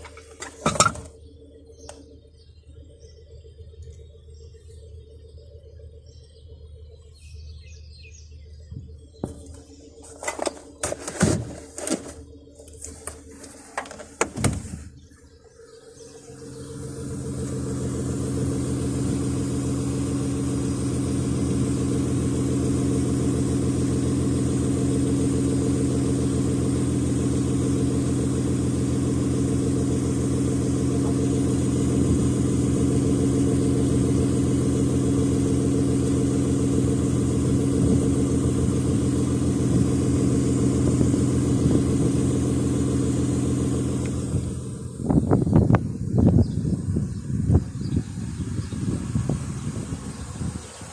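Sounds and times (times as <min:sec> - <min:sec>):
car engine idling: 0:00.0 - 0:50.9.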